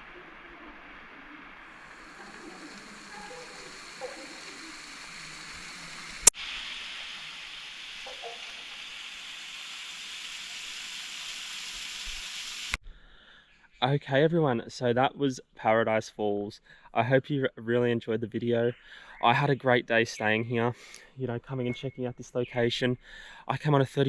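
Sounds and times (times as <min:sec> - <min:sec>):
waterfall splashing: 0:00.0 - 0:12.8.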